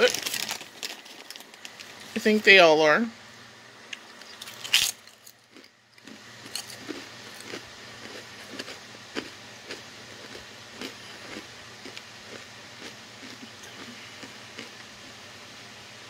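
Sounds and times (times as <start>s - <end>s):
potato chips crunching in mouth: 0.0s - 2.0s, 4.4s - 14.8s.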